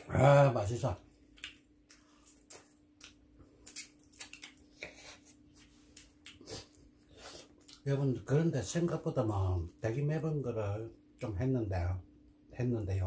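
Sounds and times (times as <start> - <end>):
faint steady hum: 0.0 - 13.0
chewing clicks and smacks: 1.2 - 5.0, 7.6 - 7.8.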